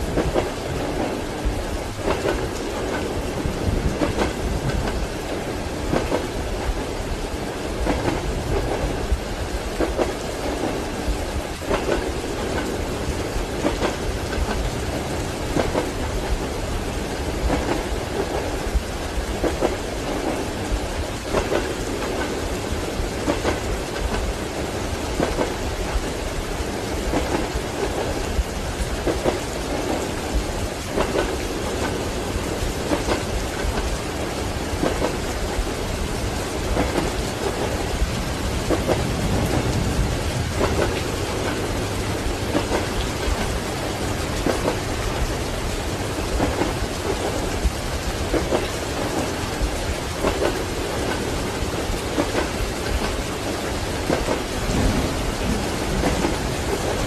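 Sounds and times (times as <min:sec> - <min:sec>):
train wheels clacking over rail joints: 0:00.0 - 0:07.0, 0:07.8 - 0:57.0
steady rain: 0:00.0 - 0:57.0
low thunder rumble: 0:36.7 - 0:46.9, 0:54.0 - 0:57.0.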